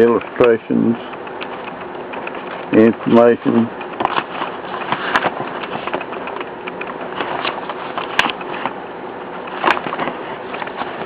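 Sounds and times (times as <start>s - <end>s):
paper pages rustling: 1.0s - 11.0s
sharp paper crackles: 3.8s - 8.7s.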